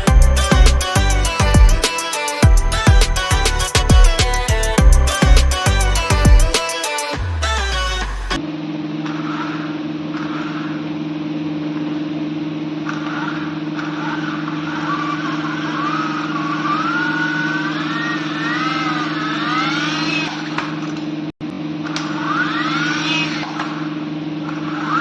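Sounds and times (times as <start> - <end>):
toy helicopter rotors whirring: 0.4 - 5.9, 6.6 - 7.2.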